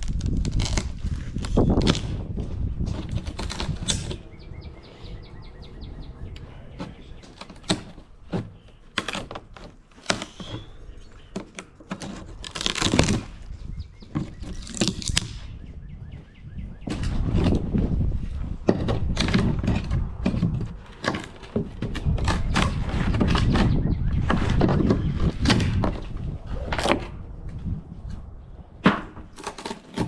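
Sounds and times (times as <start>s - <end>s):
bird chirping: 3.7s - 9.0s, 10.1s - 11.6s, 13.5s - 17.2s, 22.4s - 25.4s.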